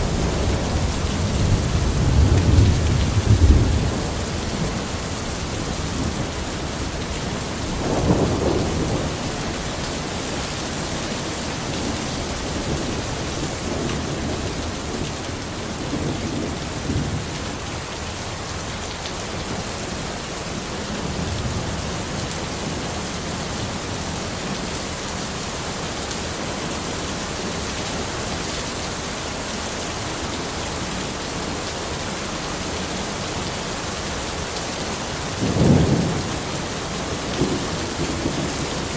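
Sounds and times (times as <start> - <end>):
distant thunder rumbling: 0.0 - 17.6, 35.4 - 38.9
rain falling in a forest: 0.0 - 38.9.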